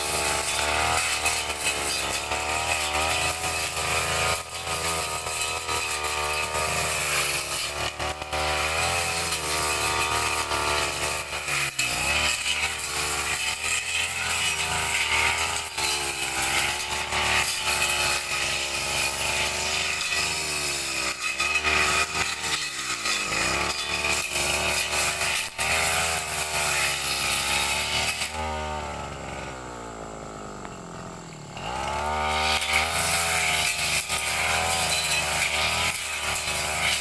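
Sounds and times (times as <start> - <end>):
brush cutter engine revving: 0.0 - 37.0.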